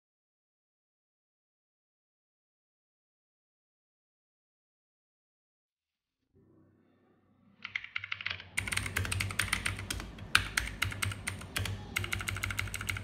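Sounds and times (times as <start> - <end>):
mechanical keyboard clicks: 7.6 - 13.0.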